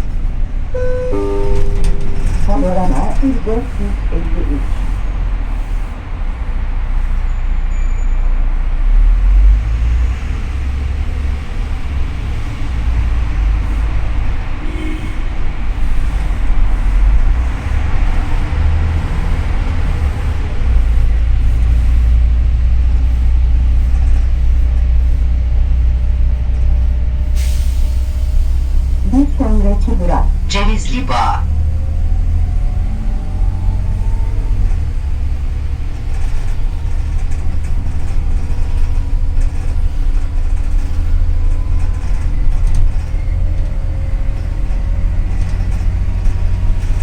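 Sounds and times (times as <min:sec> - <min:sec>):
bus engine rumble: 0:00.0 - 0:47.0.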